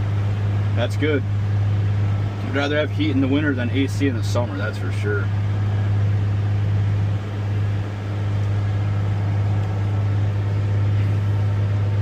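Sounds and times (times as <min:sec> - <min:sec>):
diesel engine deep hum: 0:00.0 - 0:12.0.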